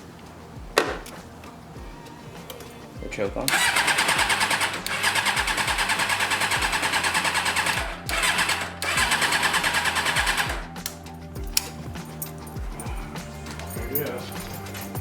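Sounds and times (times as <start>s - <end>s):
engine starter cranking: 3.4s - 12.4s.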